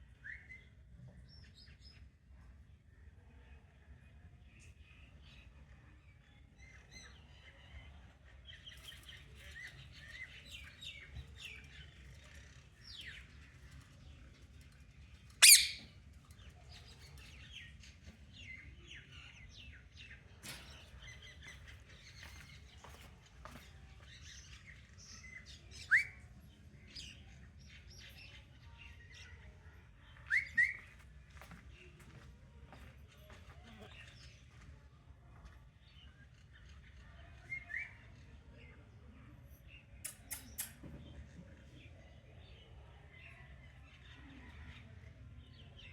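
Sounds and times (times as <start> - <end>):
parrot chirping and chattering: 15.4 - 15.9
parrot squawk: 15.4 - 15.9.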